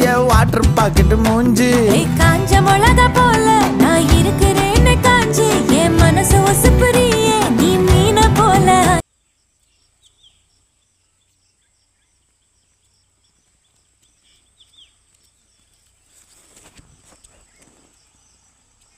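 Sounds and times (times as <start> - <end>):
song with singing: 0.0 - 9.0.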